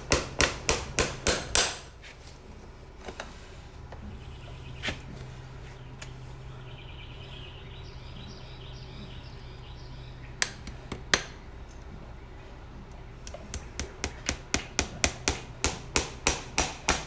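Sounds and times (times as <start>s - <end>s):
hammer ringing on horseshoe nails: 0.0s - 1.9s, 10.4s - 11.4s, 13.2s - 17.0s.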